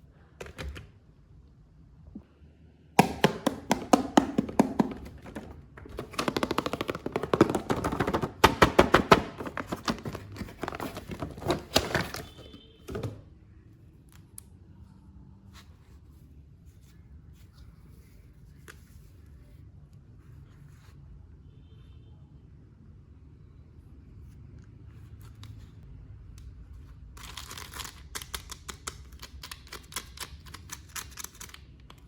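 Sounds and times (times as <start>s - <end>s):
plastic toy parts clicking: 27.2s - 32.0s.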